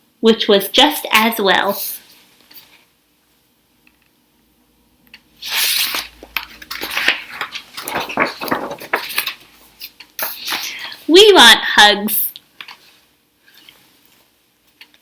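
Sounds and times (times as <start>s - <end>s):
paper page rustling: 5.4s - 10.8s.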